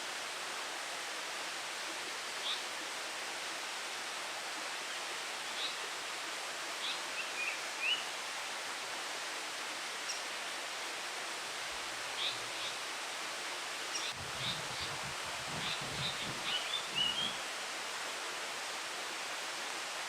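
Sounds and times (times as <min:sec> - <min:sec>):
steady background hiss: 0:00.0 - 0:20.0
bird fledgling high call notes: 0:15.6 - 0:17.4.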